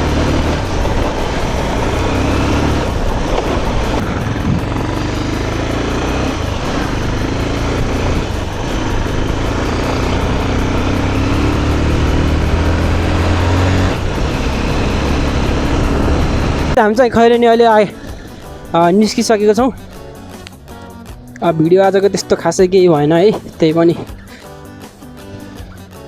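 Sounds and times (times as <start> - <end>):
motorcycle engine running: 0.0 - 26.0
wind and road rush: 0.0 - 26.0.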